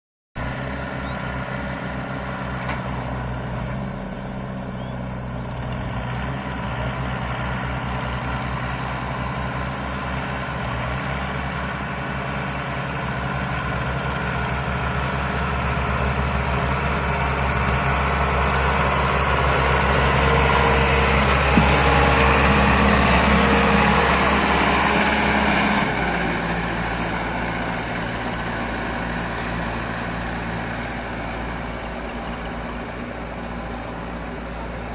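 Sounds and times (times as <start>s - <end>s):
tractor diesel engine running: 0.4s - 34.9s.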